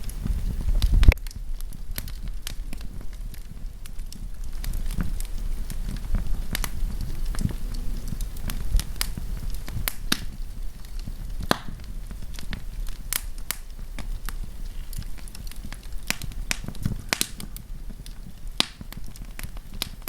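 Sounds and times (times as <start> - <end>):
fire popping and snapping: 0.0 - 20.0
wood fire crackling: 0.0 - 20.0.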